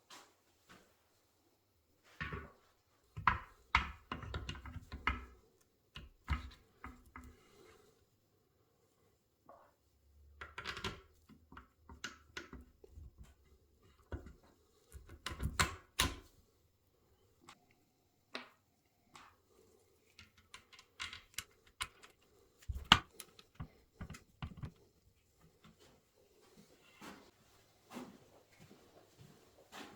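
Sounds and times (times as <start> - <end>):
hand tools clicking and tapping: 20.1 - 24.8.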